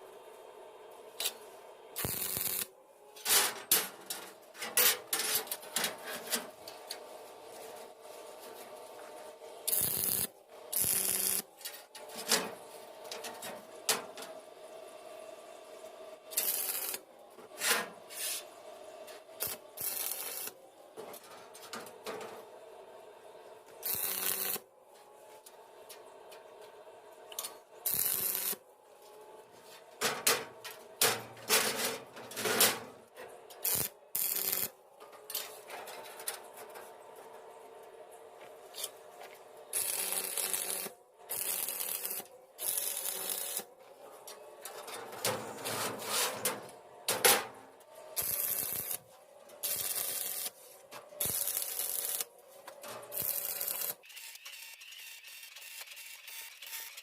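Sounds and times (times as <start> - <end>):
metal scraping strokes: 17.5 - 18.5, 44.6 - 47.6.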